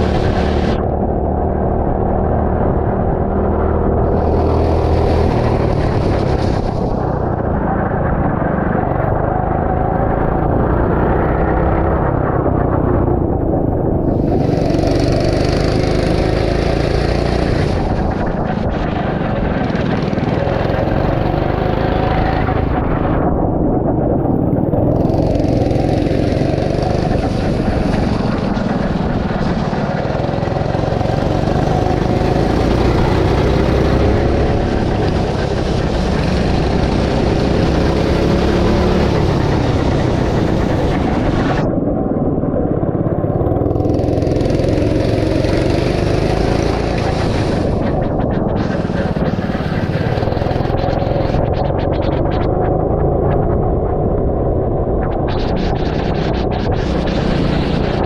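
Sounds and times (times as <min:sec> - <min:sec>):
go-kart engine revving: 0:00.0 - 0:23.6, 0:24.2 - 0:41.8, 0:42.8 - 0:53.4
steady rushing noise: 0:00.0 - 0:58.0.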